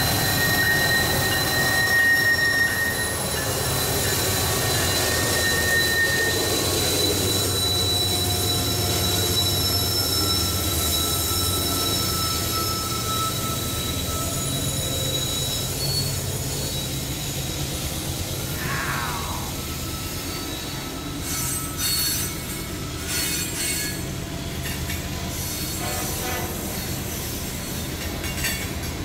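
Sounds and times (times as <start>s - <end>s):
freight train rumbling past: 0.0s - 29.0s
steel wheels squealing: 0.0s - 29.0s.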